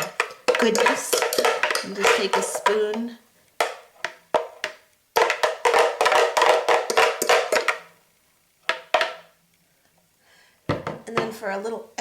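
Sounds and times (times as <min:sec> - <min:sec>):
spoon scraping and tapping container: 0:00.0 - 0:07.9.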